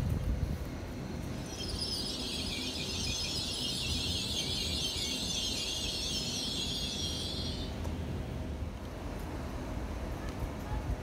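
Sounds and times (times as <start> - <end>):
low train rumble: 0.0 - 11.0
train wheels screeching: 1.1 - 8.3.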